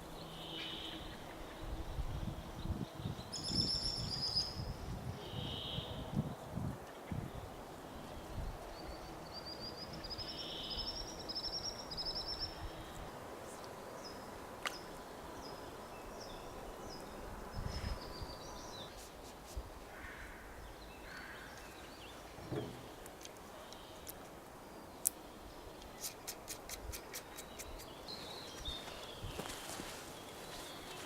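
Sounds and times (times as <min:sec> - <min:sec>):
small birds singing: 0:00.0 - 0:19.1, 0:20.0 - 0:31.0.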